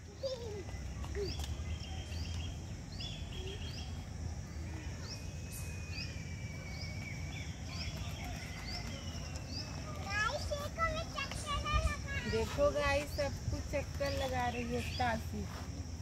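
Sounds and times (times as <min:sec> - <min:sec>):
birds chirping: 0:00.0 - 0:15.5.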